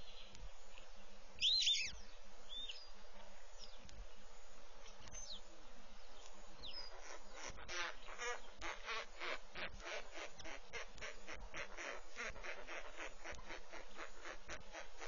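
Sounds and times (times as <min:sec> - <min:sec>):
rapidly repeated bird calls: 0:00.0 - 0:15.0
falling bird whistle: 0:01.4 - 0:01.9.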